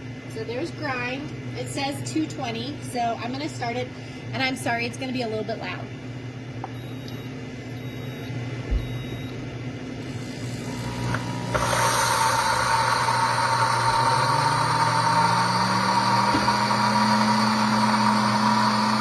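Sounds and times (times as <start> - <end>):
low steady hum: 0.0 - 15.9
short electronic beeps: 6.8 - 9.4
blender grinding coffee beans: 10.0 - 19.0.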